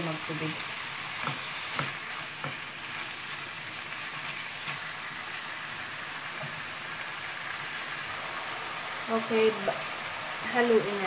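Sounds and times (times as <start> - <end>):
chicken sizzling in oil: 0.0 - 11.0
spatula tapping pan: 1.2 - 2.7.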